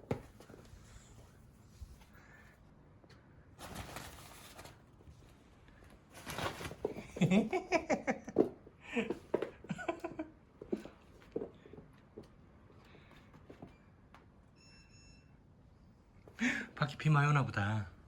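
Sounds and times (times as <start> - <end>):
man laughing: 7.0 - 10.3.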